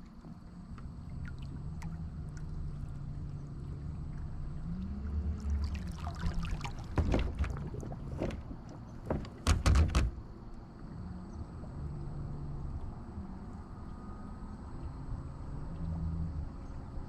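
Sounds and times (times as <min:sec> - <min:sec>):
water splashing and knocking: 0:05.4 - 0:10.2.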